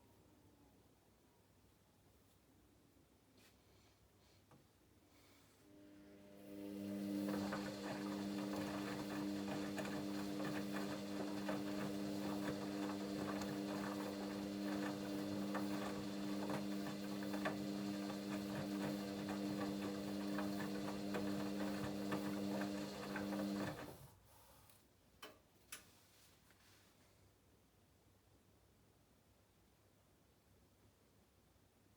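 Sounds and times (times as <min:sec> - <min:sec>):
washing machine humming and rattling: 0:06.4 - 0:24.1.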